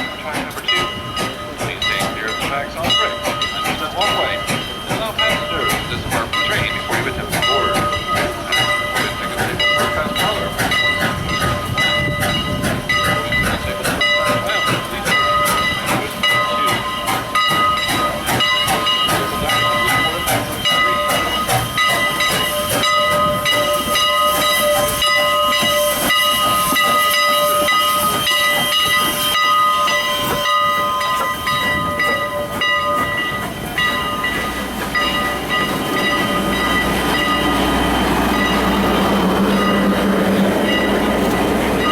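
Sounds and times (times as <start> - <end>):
steam train hiss: 0.0 - 41.9
wheels clicking on rails: 0.0 - 41.9.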